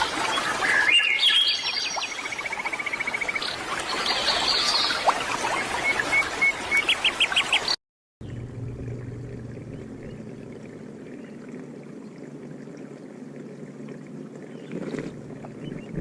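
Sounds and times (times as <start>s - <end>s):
birds calling and singing: 0.0s - 8.5s, 14.5s - 16.0s
low hum: 8.2s - 16.0s.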